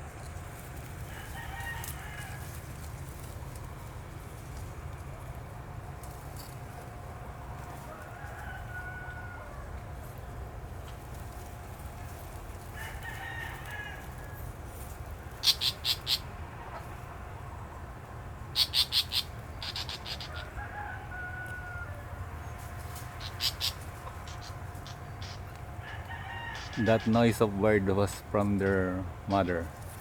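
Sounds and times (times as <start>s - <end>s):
rooster crowing faintly: 1.0s - 2.6s, 7.6s - 10.0s, 12.6s - 14.6s, 20.2s - 27.7s
bird alarm calls: 15.4s - 16.3s, 18.5s - 20.5s, 23.2s - 25.6s, 26.5s - 27.5s, 29.2s - 29.7s.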